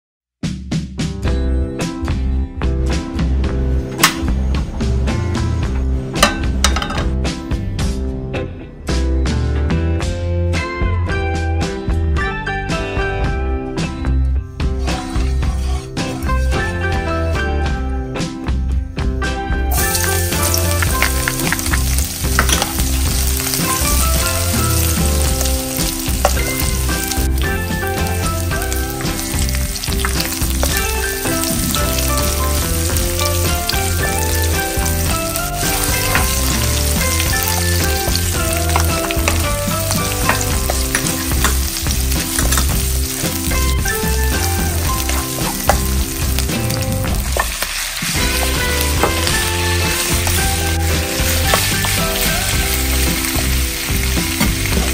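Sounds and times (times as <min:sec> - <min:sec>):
garlic and onion sizzling in oil: 0:19.7 - 0:54.9
spatula stirring in a wok: 0:19.8 - 0:53.5.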